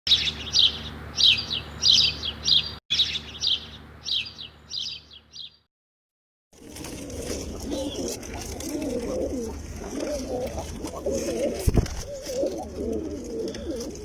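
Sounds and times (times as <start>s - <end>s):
small bird chirping: 0.1s - 5.7s.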